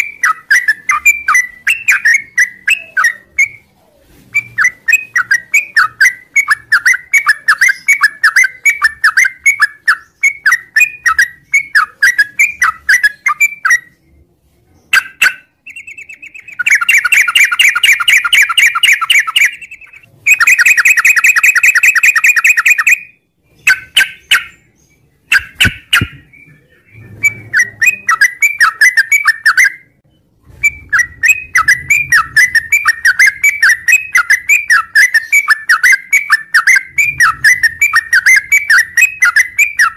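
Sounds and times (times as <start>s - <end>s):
bird chattering song: 0.0s - 14.1s, 14.8s - 39.9s
buzzy bird trills: 14.9s - 30.0s, 30.6s - 39.9s.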